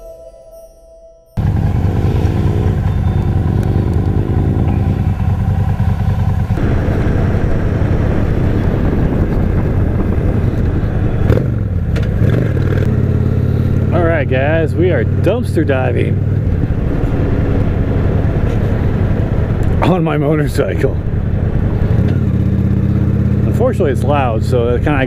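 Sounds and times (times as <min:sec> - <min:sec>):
motorcycle engine running: 0:01.4 - 0:25.0
wind rush over microphone: 0:06.6 - 0:12.9, 0:16.2 - 0:22.2.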